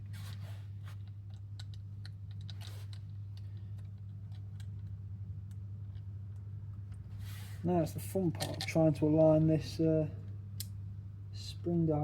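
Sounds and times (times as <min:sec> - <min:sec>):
steady low hum: 0:00.0 - 0:12.0
small parts clicking and tapping: 0:01.0 - 0:06.4.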